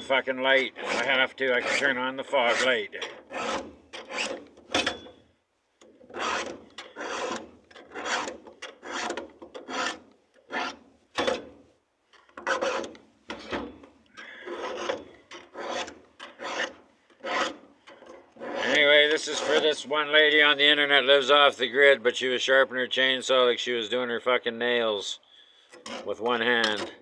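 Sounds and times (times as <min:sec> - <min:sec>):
hand file rasping on chain: 0:00.7 - 0:04.5, 0:06.1 - 0:10.8, 0:12.4 - 0:13.0, 0:14.3 - 0:19.7.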